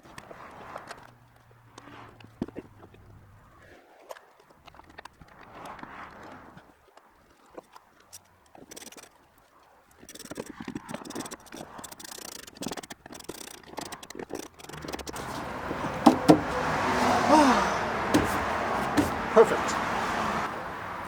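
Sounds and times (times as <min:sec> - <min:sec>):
clicks and scrapes of hand work: 0:00.0 - 0:16.7, 0:18.2 - 0:19.3
sharp knocks: 0:14.7 - 0:16.7, 0:18.1 - 0:19.4
loud rushing noise: 0:15.2 - 0:21.0.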